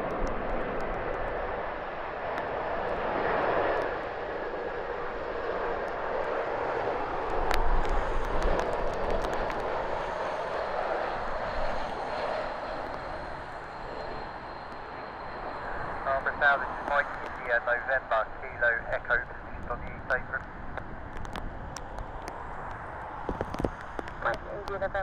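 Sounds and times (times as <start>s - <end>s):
rain: 0.0s - 13.8s, 20.4s - 24.8s
jet engines rushing: 0.0s - 25.0s
wind noise: 0.0s - 25.0s.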